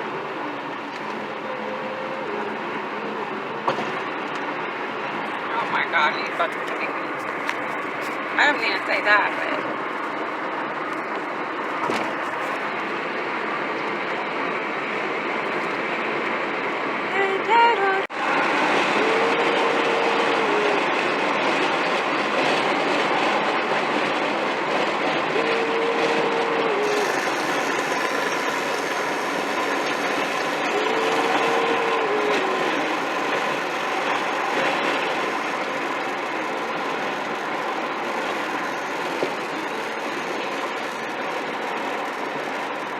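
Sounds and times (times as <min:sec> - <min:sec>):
moving vehicle rumble and hiss: 0:00.0 - 0:42.9
held tone: 0:25.4 - 0:41.4.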